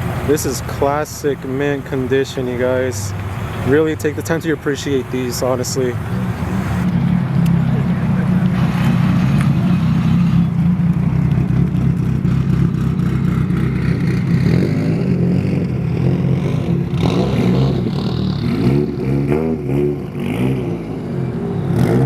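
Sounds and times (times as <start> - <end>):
car engine idling: 0.0 - 14.6.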